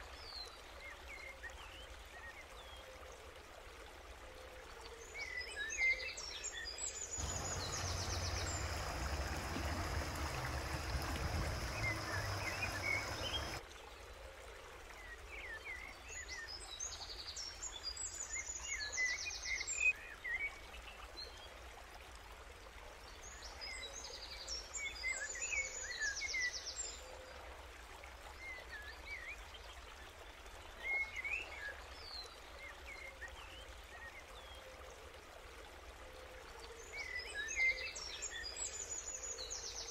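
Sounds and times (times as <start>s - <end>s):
birds chirping: 7.2s - 13.6s.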